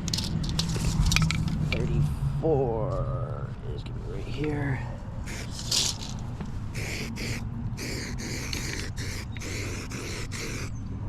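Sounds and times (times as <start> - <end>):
short hissing bursts: 5.2 - 10.7.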